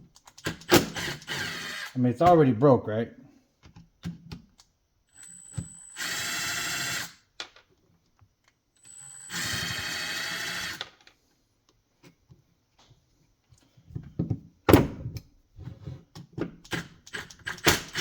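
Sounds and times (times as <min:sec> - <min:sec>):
electric drill spinning: 0:00.5 - 0:02.0, 0:05.1 - 0:07.3, 0:08.8 - 0:11.0, 0:17.1 - 0:18.0.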